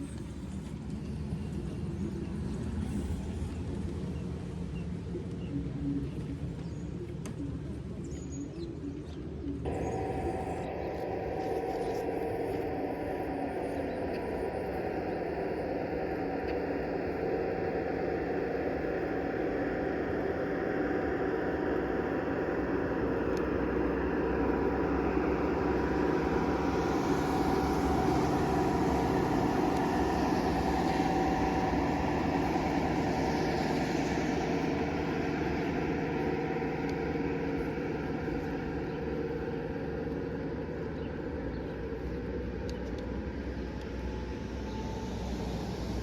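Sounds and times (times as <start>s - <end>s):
model train running: 9.6s - 46.0s.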